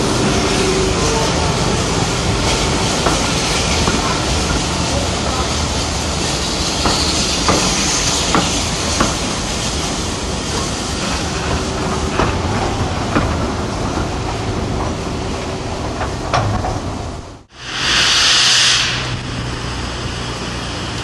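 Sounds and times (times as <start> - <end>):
train coaches rumbling: 0.0 - 21.0
wheels clicking over rail joints: 2.2 - 17.4.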